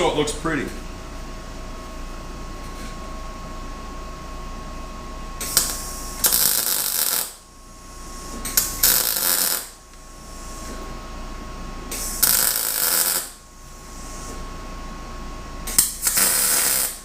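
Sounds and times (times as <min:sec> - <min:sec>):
arc welding crackle and sizzle: 0:05.4 - 0:10.8, 0:11.8 - 0:14.2, 0:15.7 - 0:17.0.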